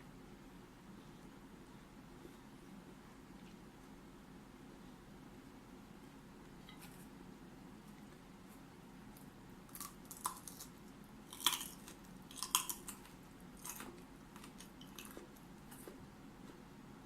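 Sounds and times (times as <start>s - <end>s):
broccoli crunching: 9.1s - 16.6s.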